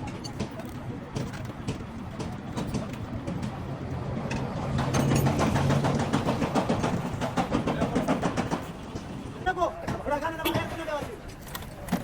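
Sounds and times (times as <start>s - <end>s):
rapid engine clatter: 4.3s - 9.3s.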